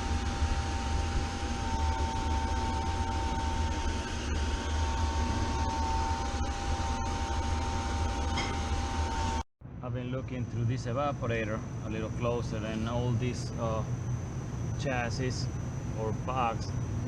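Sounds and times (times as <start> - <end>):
constant high tone: 0.0 - 9.4
machinery low hum: 0.0 - 17.0.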